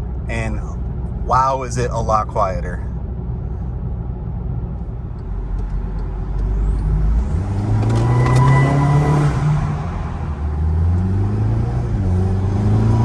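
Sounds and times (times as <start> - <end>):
car engine accelerating: 4.7 - 13.0.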